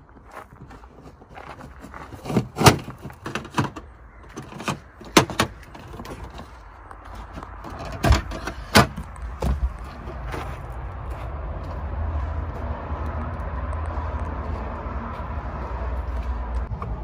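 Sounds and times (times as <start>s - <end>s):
metal parts knocking and clanking: 2.2s - 6.5s, 7.3s - 9.6s.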